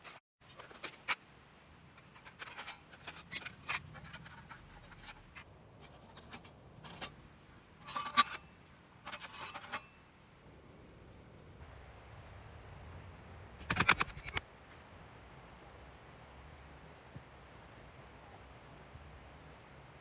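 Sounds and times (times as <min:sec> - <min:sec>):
things being handled: 0:00.0 - 0:10.0, 0:13.6 - 0:15.0.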